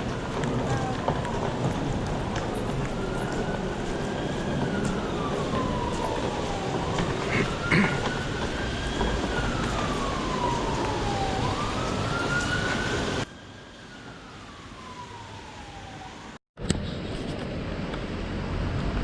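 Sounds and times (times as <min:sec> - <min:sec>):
emergency vehicle siren wailing: 0:00.0 - 0:16.4
street noise: 0:00.0 - 0:19.0.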